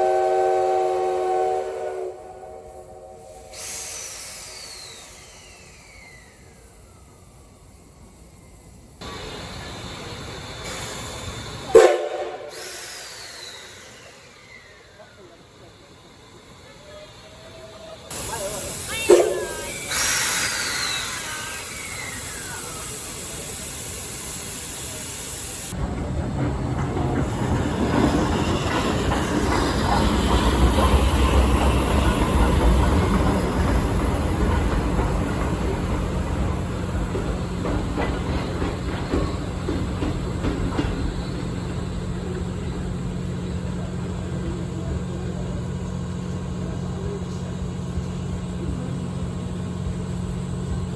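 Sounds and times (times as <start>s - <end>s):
loud horn blast: 0.0s - 3.2s, 11.8s - 12.5s
steam hissing: 0.0s - 25.9s, 27.2s - 45.6s
steam locomotive rumble: 0.0s - 50.9s
rail-joint clicks: 25.7s - 42.9s.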